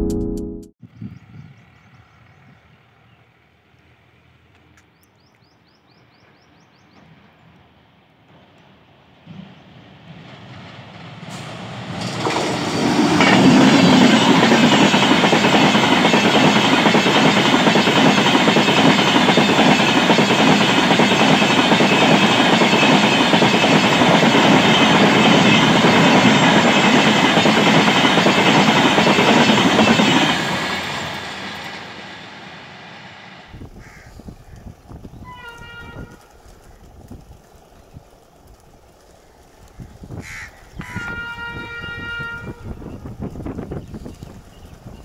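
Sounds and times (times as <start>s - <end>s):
train wheels rushing on rails: 6.9s - 33.7s
clickety-clack over rail joints: 8.2s - 31.8s.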